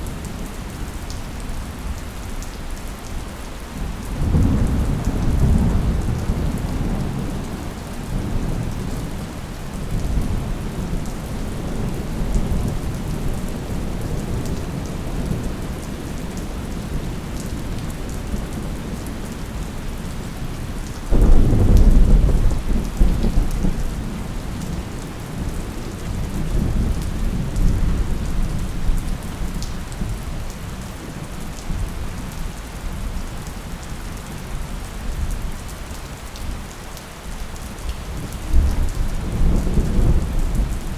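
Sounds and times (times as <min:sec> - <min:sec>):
steady rain falling: 0:00.0 - 0:40.9
loud thunderclap: 0:21.1 - 0:24.0
rolling thunder: 0:21.1 - 0:30.4, 0:38.2 - 0:40.9.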